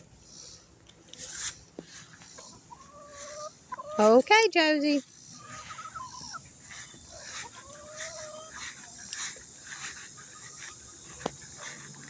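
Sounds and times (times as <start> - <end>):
dog whining: 5.4 - 8.6.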